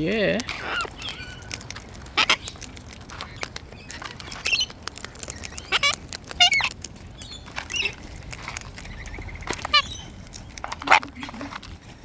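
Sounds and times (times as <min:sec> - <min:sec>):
parrots squeaky warbling calls: 0:00.5 - 0:08.1, 0:08.8 - 0:10.2, 0:10.8 - 0:11.3.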